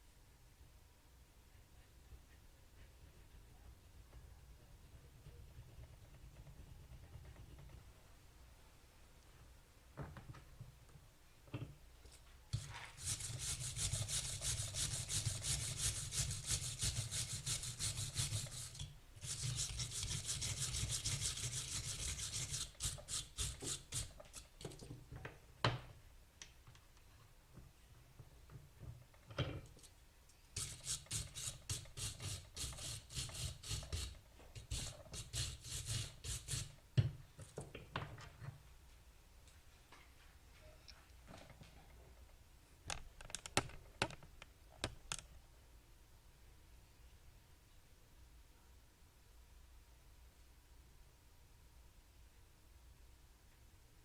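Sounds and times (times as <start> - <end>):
wire brush scrubbing metal: 30.6 - 36.7.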